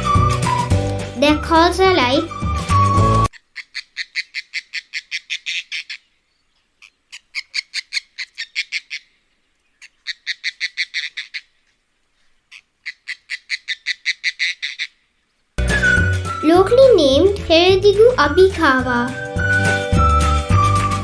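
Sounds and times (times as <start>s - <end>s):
bird calling with rapid clicks: 3.3s - 15.0s.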